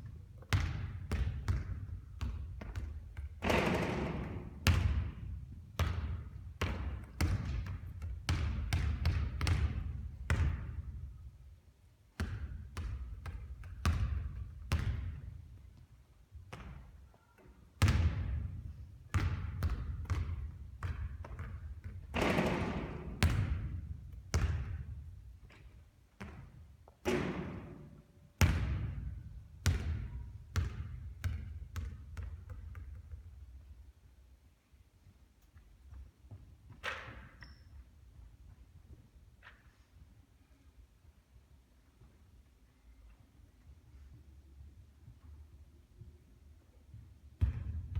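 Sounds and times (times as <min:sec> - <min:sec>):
basketball bouncing on hard court: 0:00.0 - 0:11.0, 0:12.2 - 0:15.4, 0:16.5 - 0:16.9, 0:17.8 - 0:33.4, 0:47.4 - 0:47.9.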